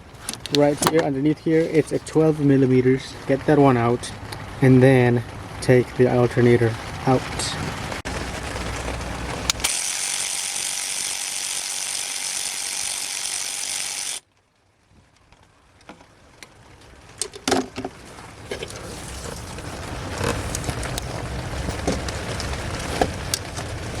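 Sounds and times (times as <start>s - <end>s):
ratchet wrench clicking: 9.6s - 14.2s.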